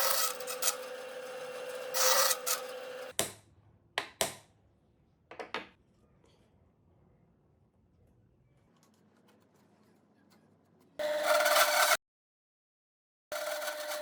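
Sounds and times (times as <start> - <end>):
sanding wood: 0.0 - 3.1.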